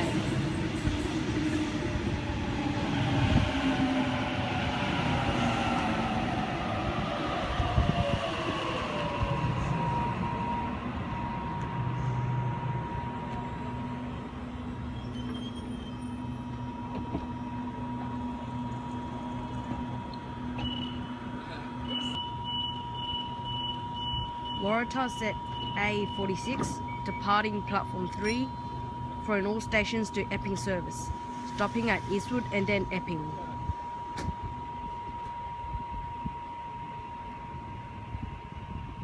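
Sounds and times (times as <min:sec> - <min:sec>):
electric train motor whine: 0:00.0 - 0:39.0
train humming: 0:00.0 - 0:39.0.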